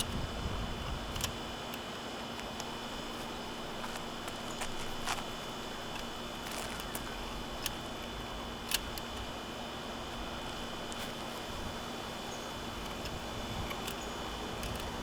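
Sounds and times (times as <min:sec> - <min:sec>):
background hiss and hum: 0:00.0 - 0:15.0
sharp handling clicks: 0:00.8 - 0:09.4, 0:12.7 - 0:15.0.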